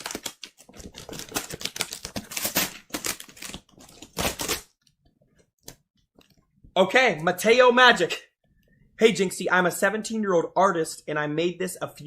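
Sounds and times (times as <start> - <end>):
packaging being torn open: 0.0 - 4.6.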